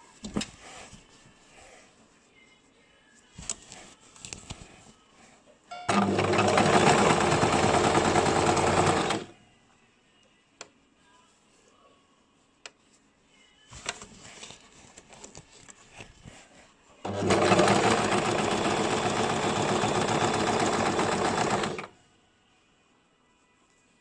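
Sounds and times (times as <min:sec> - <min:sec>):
sewing machine stitching: 0:05.9 - 0:09.3, 0:17.0 - 0:21.9.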